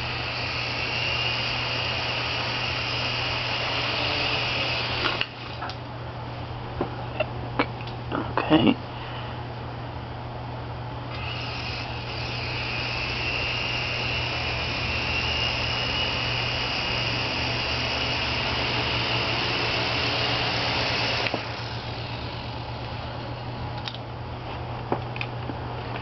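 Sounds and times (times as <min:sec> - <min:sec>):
toy helicopter motor whine: 0:00.0 - 0:05.7, 0:11.1 - 0:23.6.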